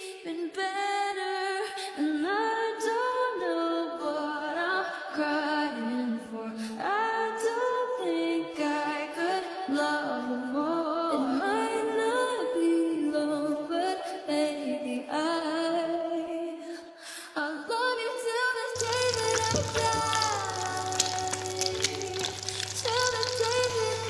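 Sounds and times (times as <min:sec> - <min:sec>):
woman singing a cappella: 0:00.0 - 0:24.0
steady hiss with low hum: 0:18.8 - 0:24.0.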